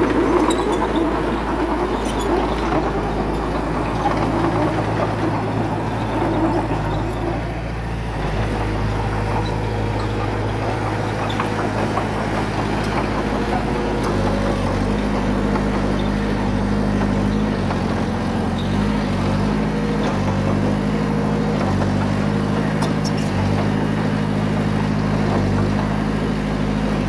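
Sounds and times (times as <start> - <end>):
heavy diesel engine running: 0.0 - 27.0.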